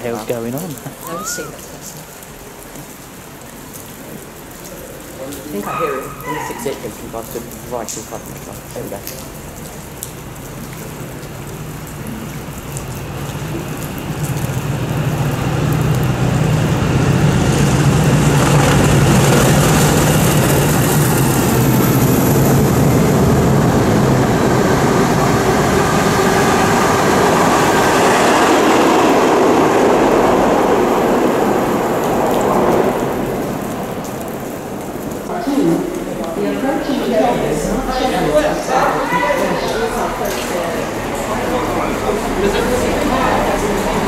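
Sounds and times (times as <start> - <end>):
rain falling: 0.0 - 44.0.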